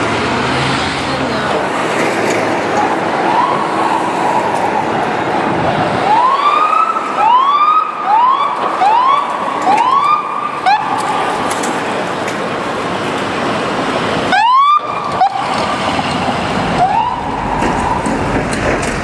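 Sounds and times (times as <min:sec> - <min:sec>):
engine and road noise: 0:00.0 - 0:19.0
fire truck siren wailing: 0:02.6 - 0:11.8, 0:13.7 - 0:18.6.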